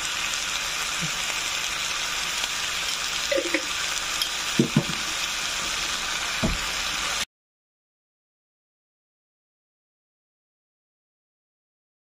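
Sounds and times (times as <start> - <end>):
food sizzling in a frying pan: 0.0 - 7.3
wooden spoon knocking on pan: 4.6 - 5.1, 6.4 - 6.7.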